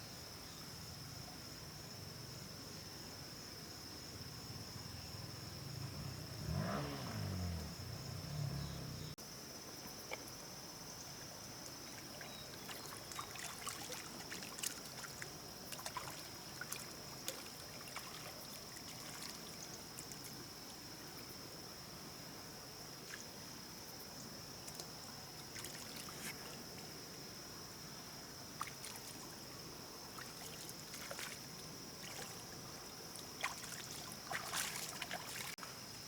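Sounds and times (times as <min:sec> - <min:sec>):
high insect drone: 0:00.0 - 0:36.0
small clicks and splashes: 0:11.6 - 0:20.4, 0:24.6 - 0:26.6, 0:28.6 - 0:29.4, 0:30.2 - 0:35.6
water trickling: 0:11.6 - 0:20.9, 0:28.6 - 0:35.6.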